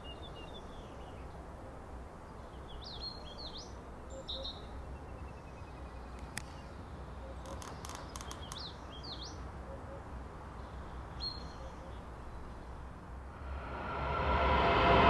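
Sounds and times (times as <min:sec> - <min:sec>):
birdsong chirps: 0:00.0 - 0:12.9
low outdoor rumble: 0:13.2 - 0:15.0.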